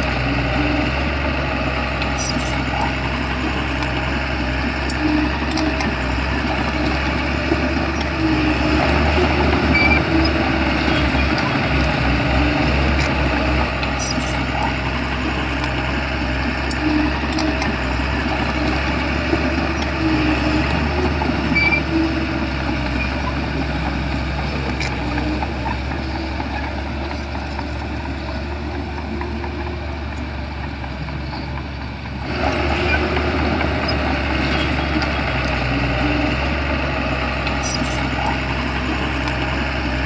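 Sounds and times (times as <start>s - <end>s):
bulldozer diesel engine rumbling: 0.0s - 40.0s.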